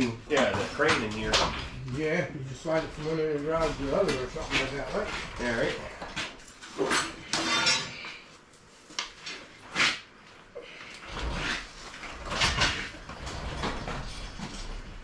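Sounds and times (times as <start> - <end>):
metal clanks and scrapes: 3.5 - 8.2, 11.1 - 14.8.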